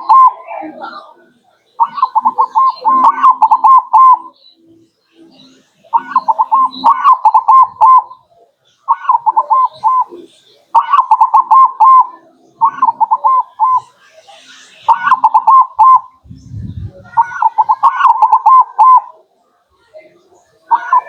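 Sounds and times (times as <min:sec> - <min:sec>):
dove cooing: 0:00.0 - 0:01.2, 0:01.8 - 0:04.4, 0:05.8 - 0:14.0, 0:14.8 - 0:19.3, 0:20.6 - 0:21.0.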